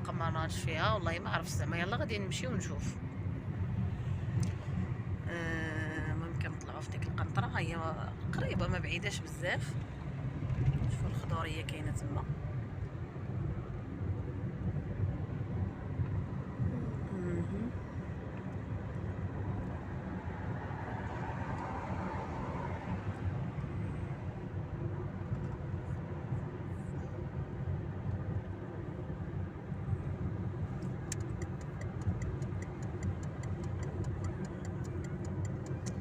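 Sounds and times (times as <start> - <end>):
road and engine rumble: 0.0 - 36.0
fast even ticking: 31.1 - 36.0.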